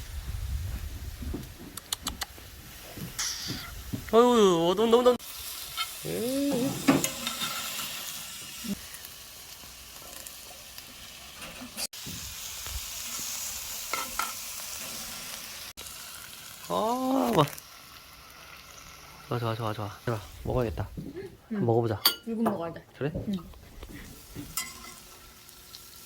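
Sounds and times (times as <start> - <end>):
meat sizzling: 2.7 - 20.9, 23.9 - 26.0
drawn-out exclamation: 6.0 - 7.0, 16.7 - 17.6.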